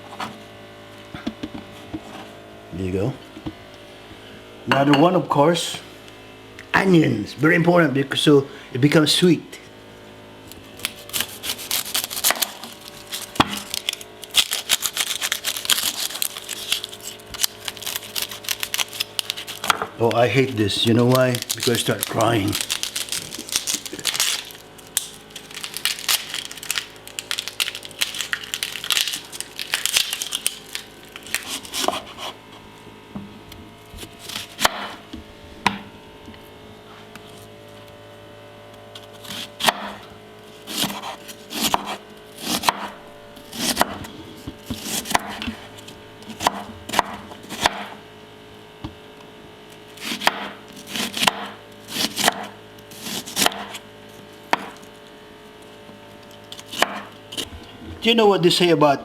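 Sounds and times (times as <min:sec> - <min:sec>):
faint steady hum: 0:00.0 - 0:59.0
rustling and crinkling: 0:10.6 - 0:19.7, 0:20.4 - 0:31.8
knife cutting on cutting board: 0:31.4 - 0:32.4, 0:40.7 - 0:42.9.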